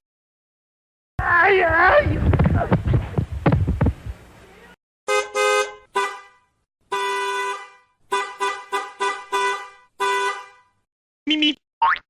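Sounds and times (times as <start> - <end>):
voice: 1.2 - 2.8, 11.3 - 11.6
car horn honking: 5.1 - 10.8.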